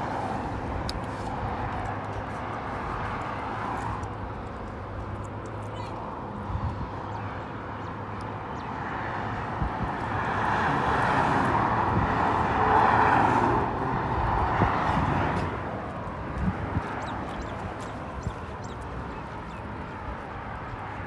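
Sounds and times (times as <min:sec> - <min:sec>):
vehicle passing by: 0:08.8 - 0:18.8.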